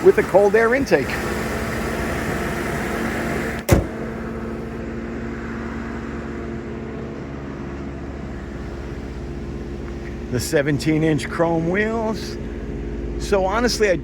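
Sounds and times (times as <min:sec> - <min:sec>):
car engine idling: 0:00.0 - 0:14.0
car hood slamming: 0:03.5 - 0:04.7.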